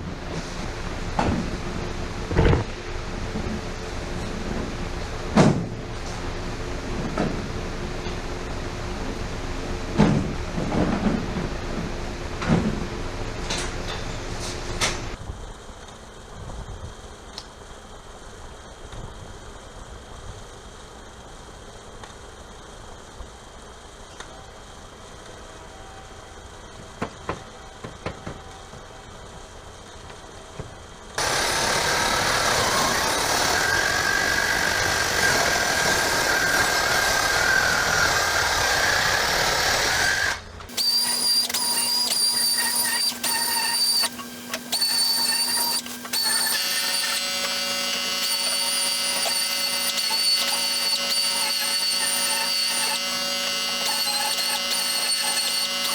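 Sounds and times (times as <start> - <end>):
loud rushing power tool: 31.2 - 55.9
whining power tool: 31.2 - 55.9.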